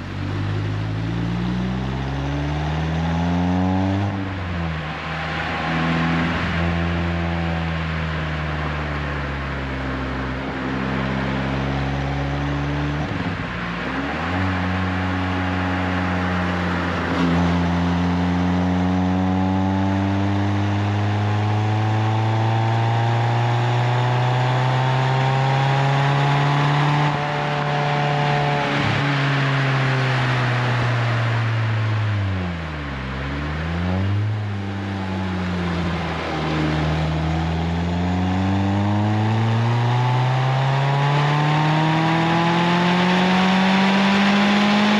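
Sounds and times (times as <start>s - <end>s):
car engine accelerating: 0.0s - 44.9s.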